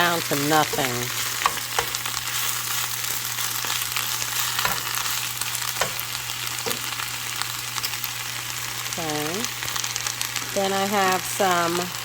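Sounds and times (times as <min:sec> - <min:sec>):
spinach sizzling in a pan: 0:00.0 - 0:12.0
utensil knocking on pan: 0:05.8 - 0:06.8.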